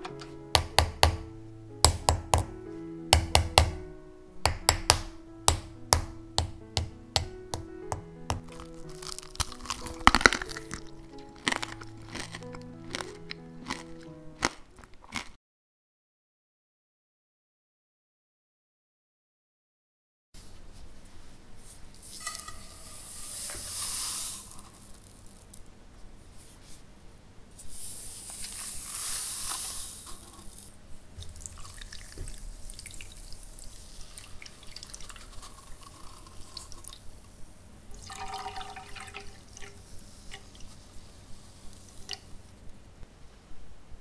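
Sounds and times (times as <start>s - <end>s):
water pouring into a pot: 22.1s - 24.8s, 31.3s - 37.1s, 37.9s - 40.8s.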